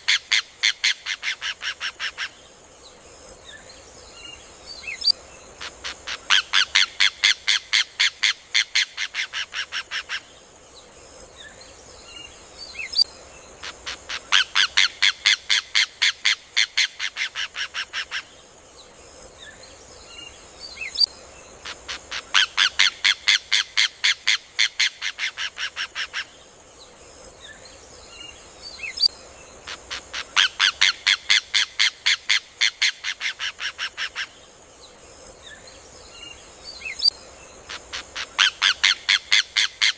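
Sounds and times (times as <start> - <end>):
steady high hiss: 0.0 - 39.9.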